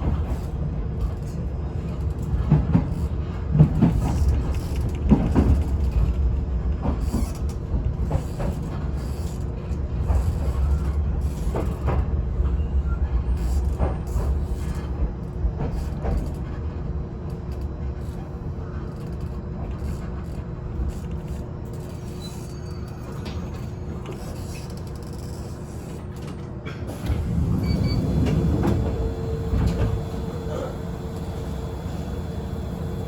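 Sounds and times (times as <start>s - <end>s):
electric train humming: 26.9s - 33.0s.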